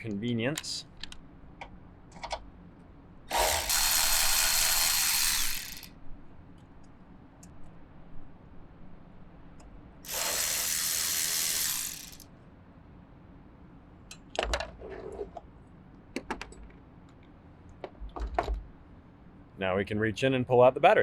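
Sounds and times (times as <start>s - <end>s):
electric ratchet spinning: 3.3s - 5.9s, 10.0s - 12.2s.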